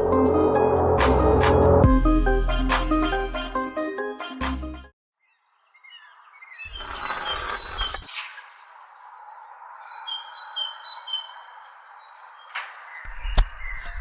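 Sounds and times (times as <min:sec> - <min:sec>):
cricket trill: 0:05.2 - 0:14.0
birds chirping: 0:05.3 - 0:08.5
sharp click: 0:12.6 - 0:14.0.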